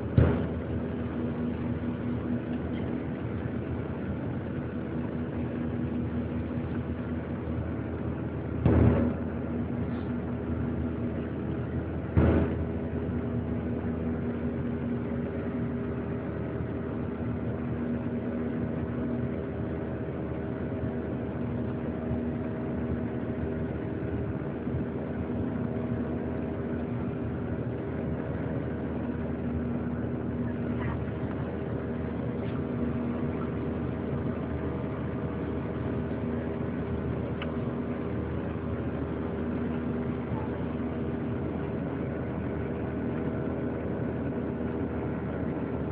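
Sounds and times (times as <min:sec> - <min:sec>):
jet engine drone in cabin: 0:00.0 - 0:45.9
loud thump: 0:00.1 - 0:00.7, 0:08.6 - 0:09.3, 0:12.2 - 0:12.7.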